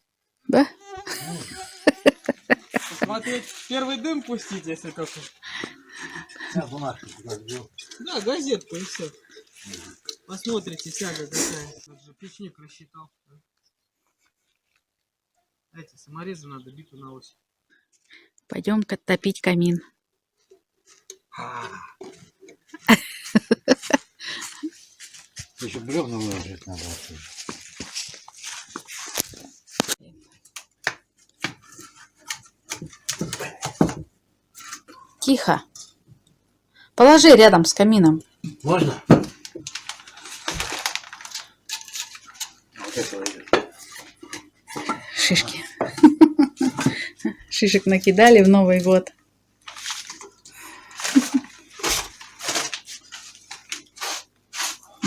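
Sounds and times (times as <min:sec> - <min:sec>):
brush sweeping floor: 0:02.5 - 0:05.4, 0:53.9 - 0:55.0.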